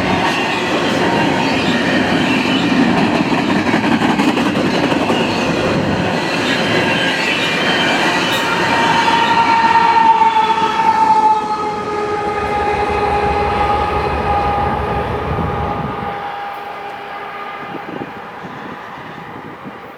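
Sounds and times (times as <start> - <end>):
freight train rumbling past: 0.0 - 19.9
high-pitched wheel squeal: 6.9 - 19.8.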